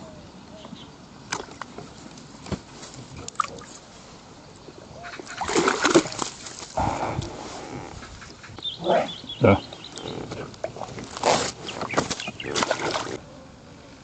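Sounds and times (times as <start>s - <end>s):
fish splashing in water: 5.1s - 6.8s, 11.3s - 13.2s.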